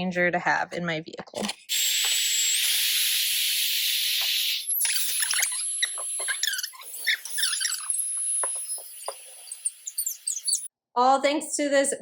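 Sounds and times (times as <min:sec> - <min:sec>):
short high squeaks and chirps: 0:01.7 - 0:10.7
small electric motor whining: 0:01.7 - 0:10.7.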